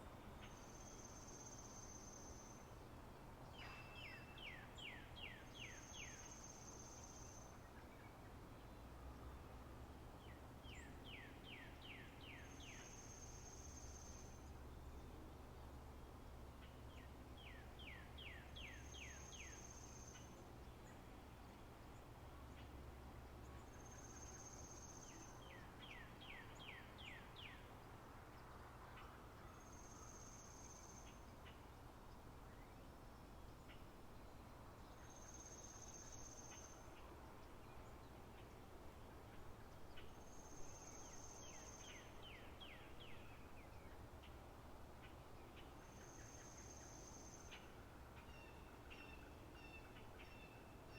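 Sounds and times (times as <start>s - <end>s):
low steady hum: 0.0s - 50.9s.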